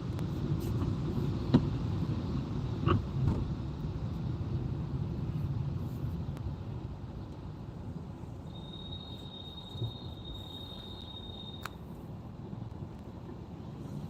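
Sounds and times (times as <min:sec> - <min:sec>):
car road rumble: 0:00.0 - 0:14.0.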